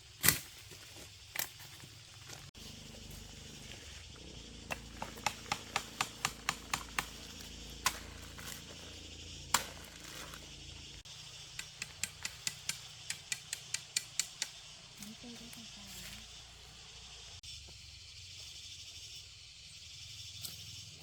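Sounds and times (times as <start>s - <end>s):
sharp knocks: 4.6s - 8.8s.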